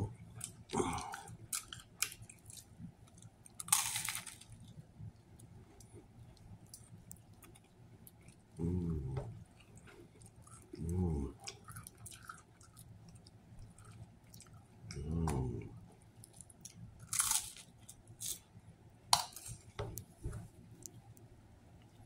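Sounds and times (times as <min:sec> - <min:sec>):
person chewing with wet clicks: 0:00.0 - 0:18.6, 0:19.2 - 0:22.0
person humming low: 0:00.8 - 0:01.2, 0:08.6 - 0:09.3, 0:14.9 - 0:15.8
crunchy bites: 0:03.5 - 0:04.7, 0:16.3 - 0:18.4.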